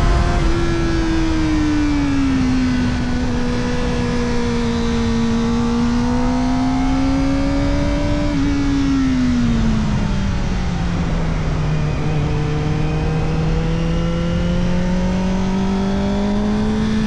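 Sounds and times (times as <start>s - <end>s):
low wind rush: 0.0s - 4.6s.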